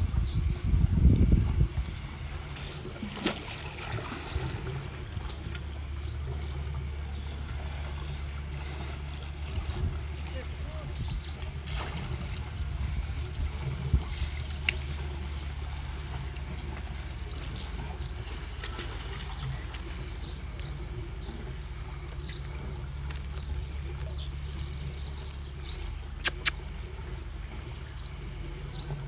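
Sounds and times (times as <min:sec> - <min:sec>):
steady low rumble: 0:00.0 - 0:29.0
small birds chirping: 0:00.2 - 0:00.8, 0:05.6 - 0:09.7, 0:10.3 - 0:11.6, 0:14.0 - 0:15.3, 0:17.2 - 0:27.0, 0:27.7 - 0:29.0.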